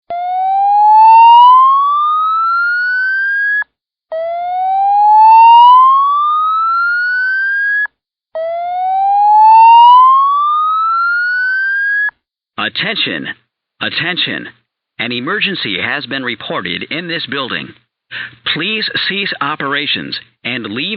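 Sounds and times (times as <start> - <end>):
fire alarm whoop tone: 0.1 - 12.1.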